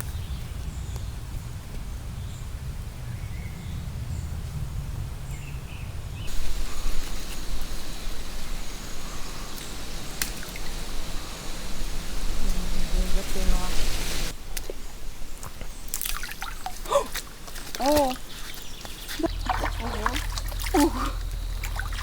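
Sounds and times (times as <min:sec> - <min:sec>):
small birds chirping: 0:05.3 - 0:22.0
rain hissing: 0:06.3 - 0:14.4, 0:19.1 - 0:22.0
low steady rumble: 0:19.2 - 0:22.0.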